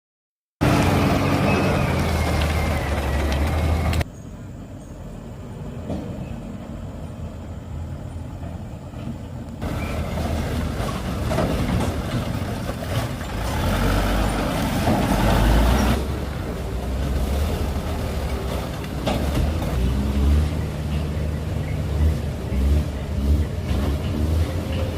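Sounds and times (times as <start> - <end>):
heavy truck engines running: 0.6 - 24.9.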